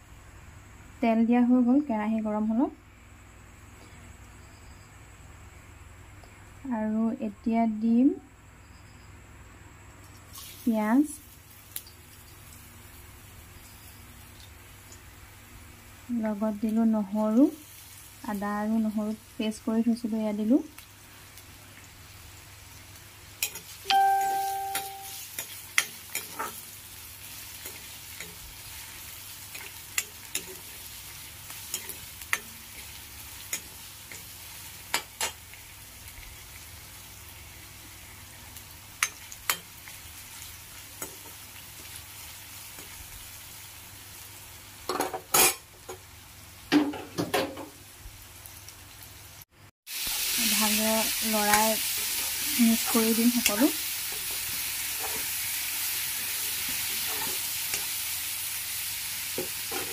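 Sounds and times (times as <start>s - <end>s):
onions sizzling in hot oil: 10.1s - 59.9s
spatula scraping pan: 25.4s - 26.7s, 56.7s - 57.9s.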